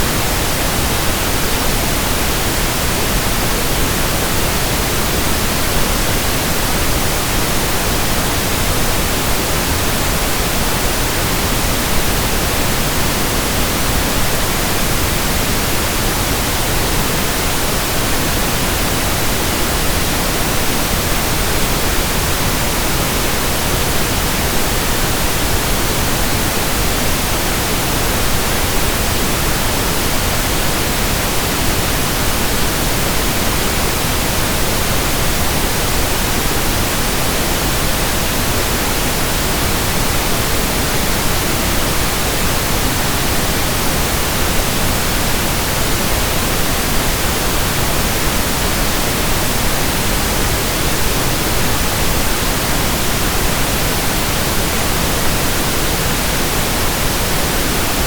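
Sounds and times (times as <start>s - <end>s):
pink noise hiss: 0.0s - 58.0s.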